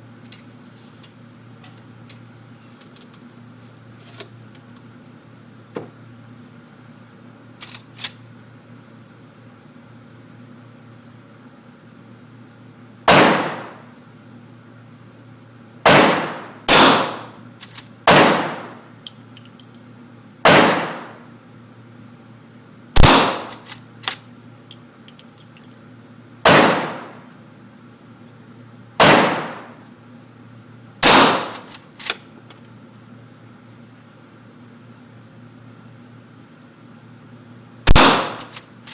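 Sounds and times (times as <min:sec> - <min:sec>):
rifle shots with echo: 0:13.1 - 0:13.8, 0:15.9 - 0:17.3, 0:18.1 - 0:18.8, 0:20.5 - 0:21.2, 0:23.0 - 0:23.5, 0:26.5 - 0:27.2, 0:29.0 - 0:29.7, 0:31.0 - 0:31.6, 0:37.9 - 0:38.5.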